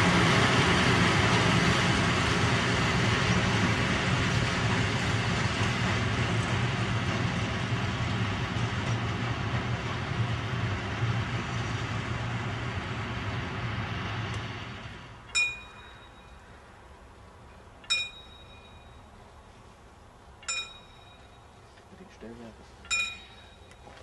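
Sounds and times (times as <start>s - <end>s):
diesel locomotive engine humming: 0.0s - 24.0s
short metallic ping: 15.3s - 16.4s, 20.4s - 21.4s, 22.9s - 23.7s.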